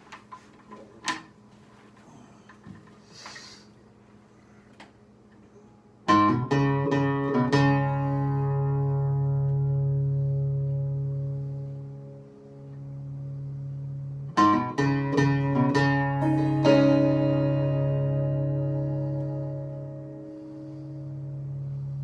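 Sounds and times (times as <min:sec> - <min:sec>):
guitar chords strummed: 0:06.1 - 0:22.0.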